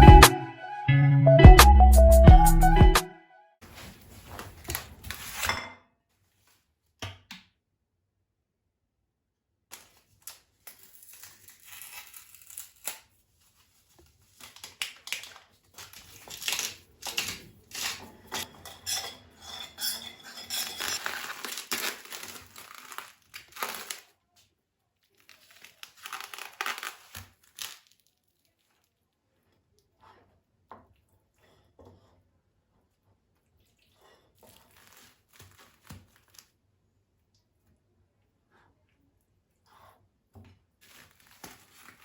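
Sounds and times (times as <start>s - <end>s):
packaging crinkling and rustling: 3.6s - 5.4s, 9.7s - 18.1s, 20.6s - 28.8s, 34.5s - 36.6s, 40.8s - 42.0s
kitchen knocks and clinks: 4.7s - 5.9s, 17.2s - 21.4s.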